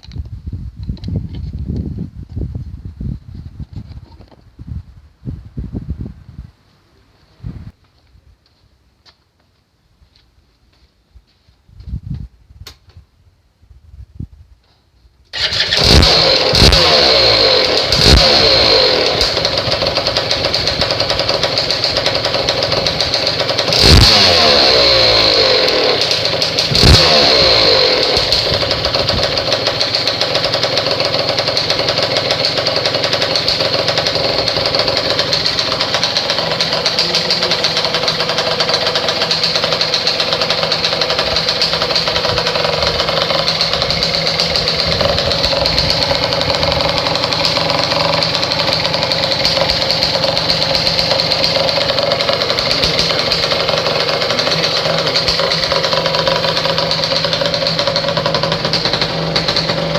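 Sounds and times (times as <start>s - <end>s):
two-stroke engine idling and revving: 15.3s - 59.9s.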